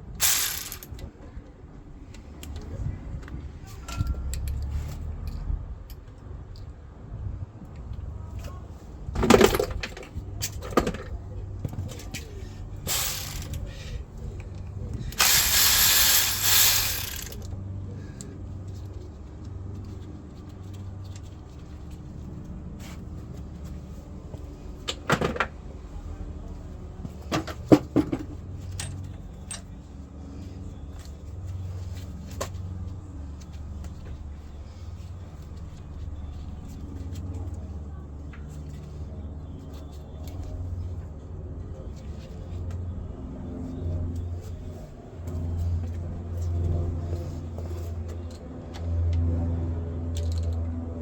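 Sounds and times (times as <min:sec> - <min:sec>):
loud hissing rush: 0:00.1 - 0:00.9, 0:12.9 - 0:13.6, 0:15.2 - 0:17.4
metal tools clanking: 0:00.2 - 0:00.9, 0:12.9 - 0:13.6, 0:15.2 - 0:17.4.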